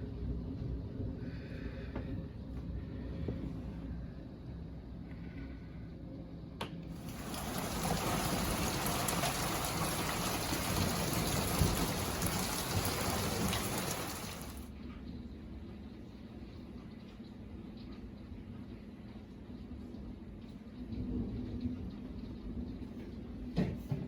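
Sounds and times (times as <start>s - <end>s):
heavy rain pouring: 7.0s - 14.7s.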